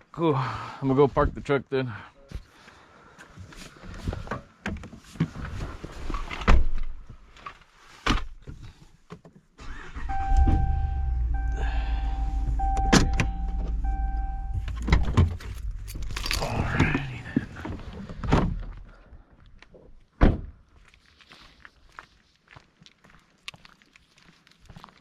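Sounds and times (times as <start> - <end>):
electronic warning chime: 10.1 - 14.9
truck engine idling: 10.1 - 17.4
truck door clunks: 12.4 - 16.3.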